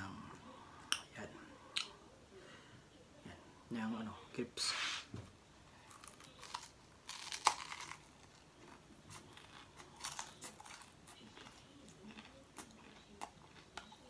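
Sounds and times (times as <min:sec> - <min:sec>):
crunchy pizza chewing: 0:05.8 - 0:14.0.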